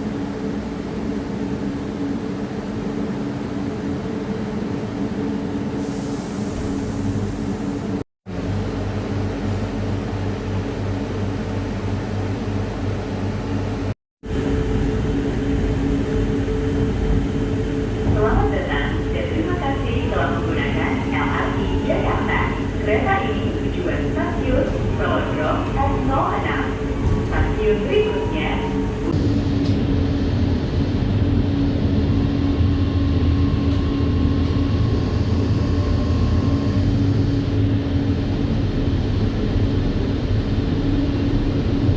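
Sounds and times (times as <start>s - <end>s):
light-rail car rumbling: 0.0s - 41.9s
train running noise: 0.0s - 41.9s
train cabin hum: 11.4s - 41.9s.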